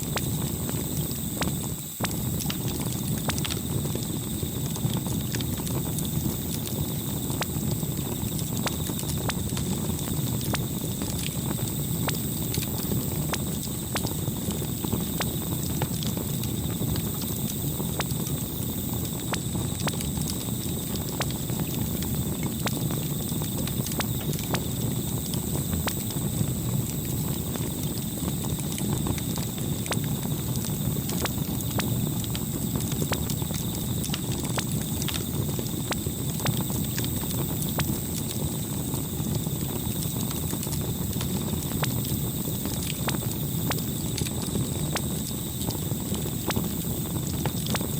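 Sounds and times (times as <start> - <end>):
campfire crackling and popping: 0.0 - 47.9.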